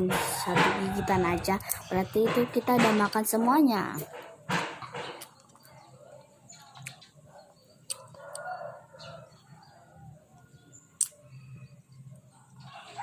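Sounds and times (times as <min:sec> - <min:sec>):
rooster crowing: 0:00.2 - 0:01.5, 0:08.0 - 0:10.2.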